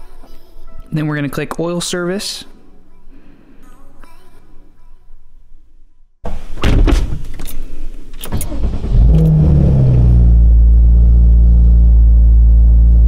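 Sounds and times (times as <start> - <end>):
car engine starting and idling: 6.3 - 13.0.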